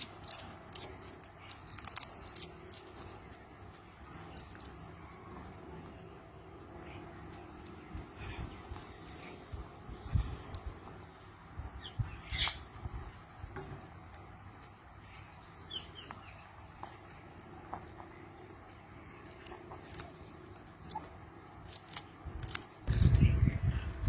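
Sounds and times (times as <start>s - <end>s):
parakeet squawking and chirping: 11.8s - 13.1s.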